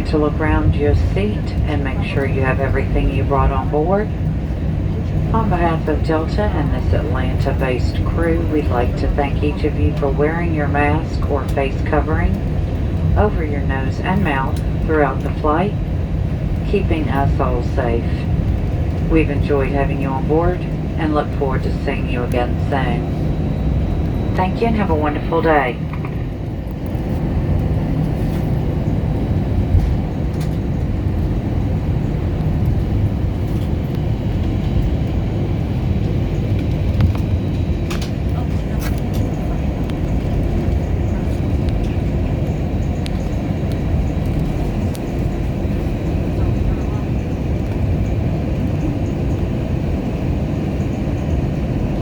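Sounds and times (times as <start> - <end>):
airplane cabin low rumble: 0.0 - 52.0
jet engines idling: 0.0 - 52.0
wheels rolling on taxiway: 0.1 - 52.0.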